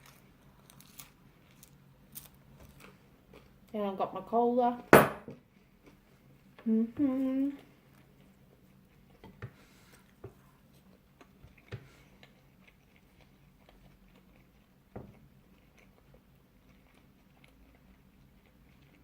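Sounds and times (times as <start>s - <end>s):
biting and chewing pizza: 0.0s - 3.7s, 10.0s - 19.0s.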